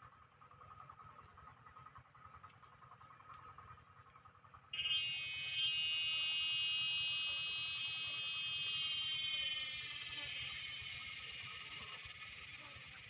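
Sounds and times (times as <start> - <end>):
faint pulsing tone: 0.0 - 13.0
cicada buzzing: 4.8 - 13.0.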